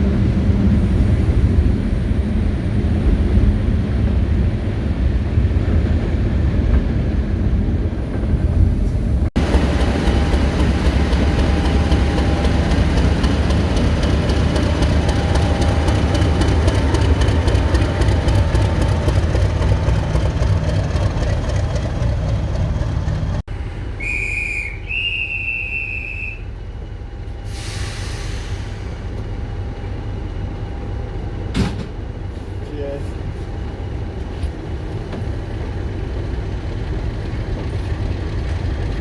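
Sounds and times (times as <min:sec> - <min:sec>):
diesel train engine rumble: 0:00.0 - 0:39.0
high train whistle: 0:24.0 - 0:26.6.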